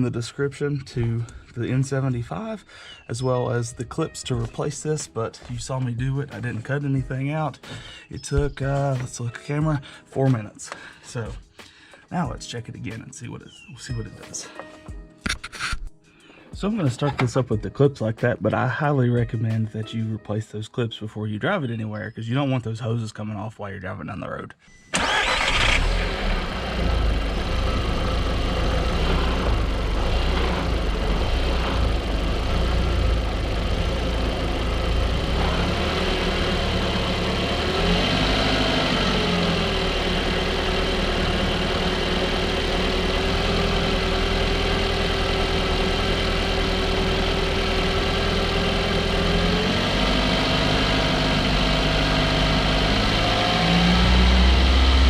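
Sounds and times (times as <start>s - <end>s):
car engine idling and revving: 25.0s - 55.0s.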